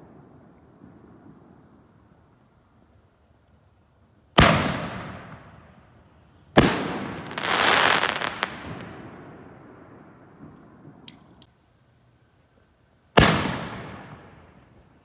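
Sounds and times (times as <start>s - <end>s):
firework booms: 4.4s - 5.7s, 6.6s - 11.0s, 13.2s - 14.6s.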